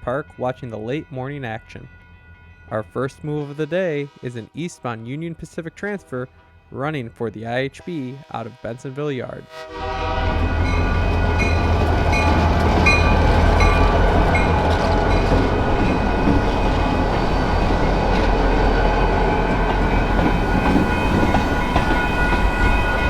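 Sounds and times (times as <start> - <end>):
diesel locomotive engines droning: 1.4 - 8.8, 9.5 - 23.0
train wheels clicking over rail joints: 11.4 - 23.0.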